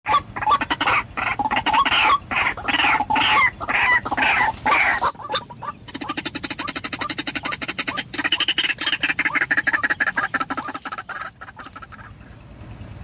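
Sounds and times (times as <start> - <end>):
bird harsh croaking calls: 0.1 - 12.6.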